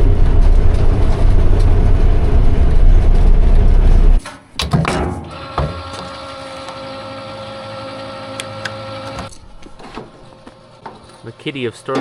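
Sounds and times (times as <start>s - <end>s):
rumbling vehicle engine: 0.0s - 4.2s
sharp knocks: 4.2s - 6.0s.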